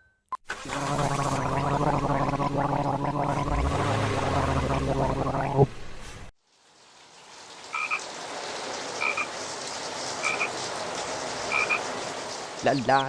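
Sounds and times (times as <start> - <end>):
frog calling: 7.7 - 8.0, 9.0 - 9.3, 10.2 - 10.5, 11.5 - 11.8.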